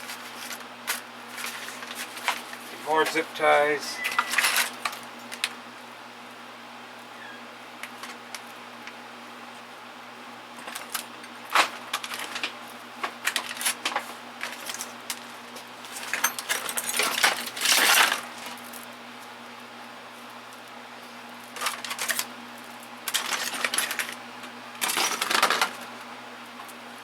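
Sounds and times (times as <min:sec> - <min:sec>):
steady low hum: 0:00.0 - 0:27.0
tools clinking in metal drawer: 0:04.0 - 0:04.8.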